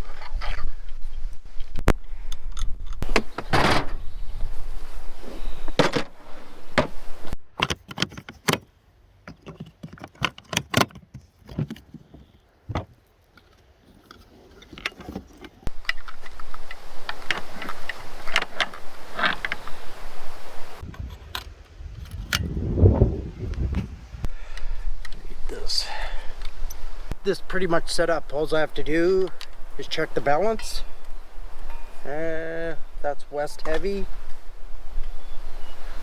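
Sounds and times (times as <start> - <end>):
wind on microphone: 0.0 - 7.4, 15.7 - 36.0
camera gear clicks and rattles: 13.4 - 19.7.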